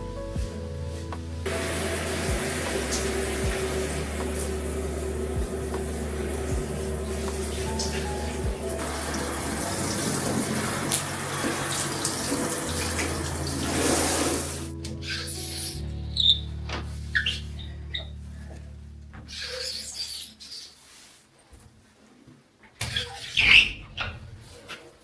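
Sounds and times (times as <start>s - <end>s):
soft background music: 0.0s - 20.0s
tap water running into sink: 1.5s - 14.7s.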